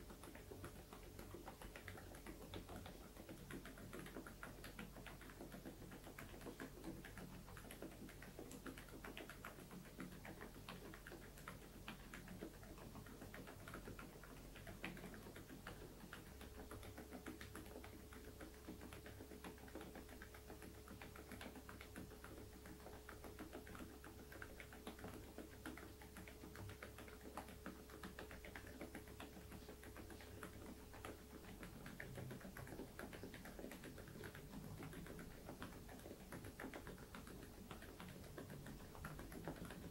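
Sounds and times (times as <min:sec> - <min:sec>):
quiet keyboard typing: 0:00.0 - 0:39.9.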